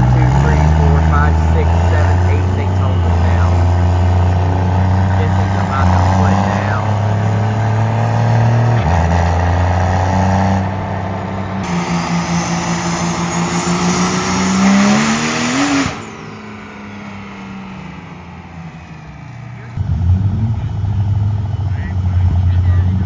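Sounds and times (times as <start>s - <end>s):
truck engine under load: 0.0s - 23.0s.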